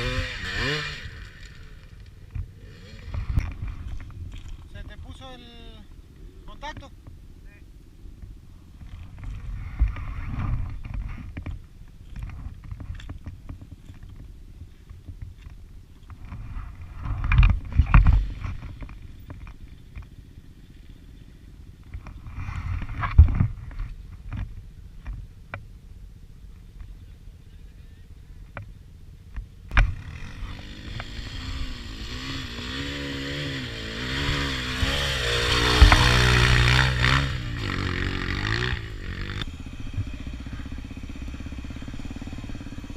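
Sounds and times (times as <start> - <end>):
motorcycle engine revving: 0.0 - 4.7, 16.2 - 24.0, 29.7 - 42.9
sharp knocks and clunks: 34.2 - 36.8.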